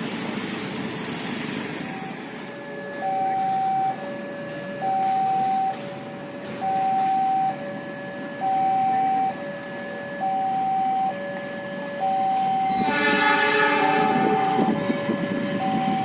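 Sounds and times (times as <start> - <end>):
two-tone level crossing alarm: 1.9 - 16.0.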